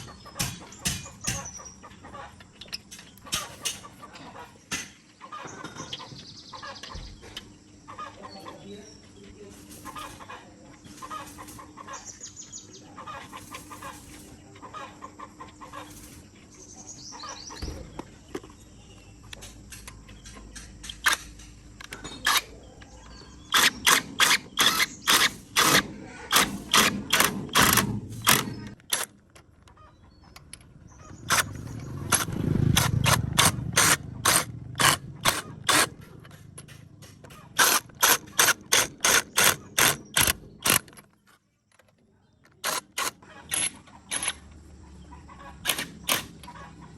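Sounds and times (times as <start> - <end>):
chickens clucking: 0.0 - 23.9, 24.5 - 28.8, 29.4 - 40.8, 42.0 - 46.9
hand ratchet clicking: 23.5 - 29.2, 31.3 - 41.0.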